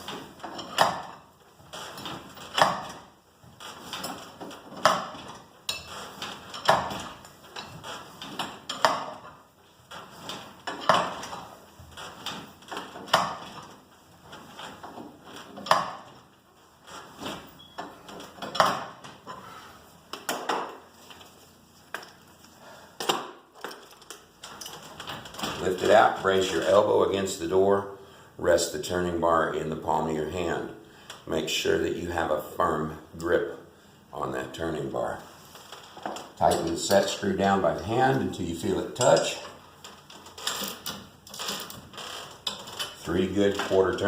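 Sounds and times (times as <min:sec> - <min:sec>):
metal bars clanking: 0:03.7 - 0:09.4, 0:36.1 - 0:44.0.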